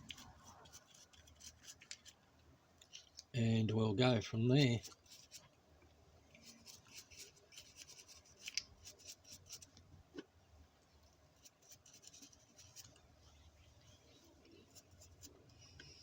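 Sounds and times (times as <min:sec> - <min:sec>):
scratching and clicking of model parts: 0:00.0 - 0:02.2, 0:04.6 - 0:05.5, 0:06.3 - 0:09.8, 0:11.4 - 0:13.1.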